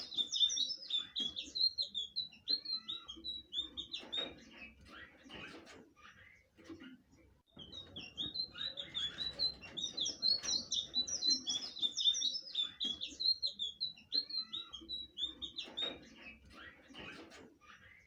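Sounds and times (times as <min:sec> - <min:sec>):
bird singing whistled notes: 0:00.0 - 0:04.4, 0:07.5 - 0:16.4.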